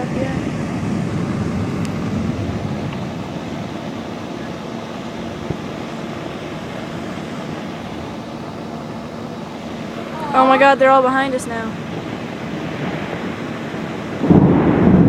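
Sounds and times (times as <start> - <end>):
distant thunder: 0.0 - 4.6, 11.8 - 15.0
wind rumbling: 0.0 - 15.0.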